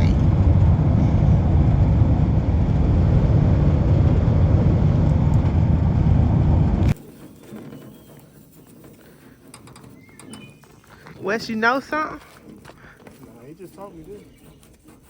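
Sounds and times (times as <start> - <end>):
road and engine rumble in car: 0.0 - 7.1.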